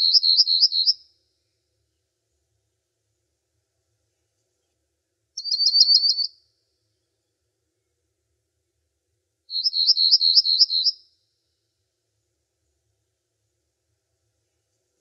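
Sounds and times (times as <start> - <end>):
songbird trilling: 0.0 - 1.0, 5.4 - 6.3, 9.5 - 11.0.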